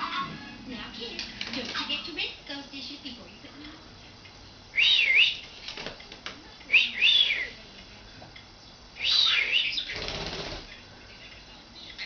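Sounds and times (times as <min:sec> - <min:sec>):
budgerigar whistling and chirping: 0:04.8 - 0:05.4, 0:09.0 - 0:10.0.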